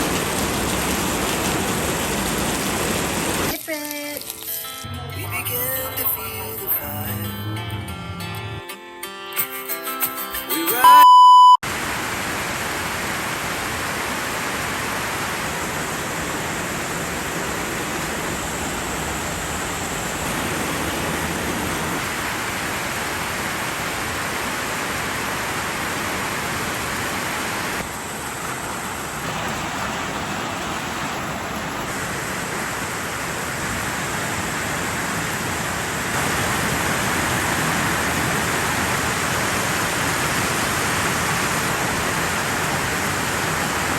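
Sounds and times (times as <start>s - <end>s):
heavy rain pouring: 0.0s - 7.6s, 11.6s - 43.9s
short loud beep: 10.8s - 11.6s.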